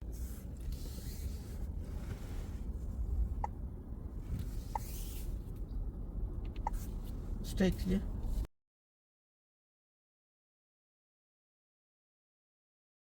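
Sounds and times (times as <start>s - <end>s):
car rumble from inside cabin: 0.0s - 8.5s.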